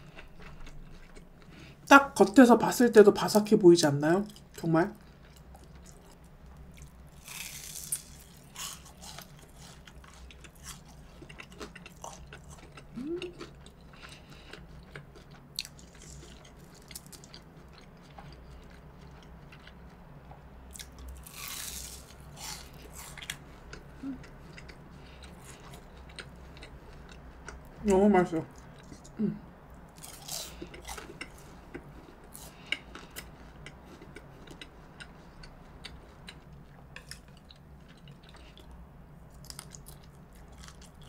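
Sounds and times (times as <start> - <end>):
quiet chewing: 0.0 - 1.8, 4.3 - 21.5, 22.3 - 27.8, 28.5 - 41.0
crunching bites into fried crust: 6.8 - 14.2, 20.8 - 23.4.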